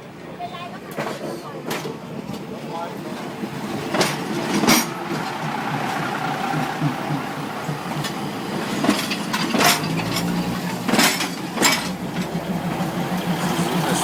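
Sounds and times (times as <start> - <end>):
train rumbling past: 0.0 - 14.0.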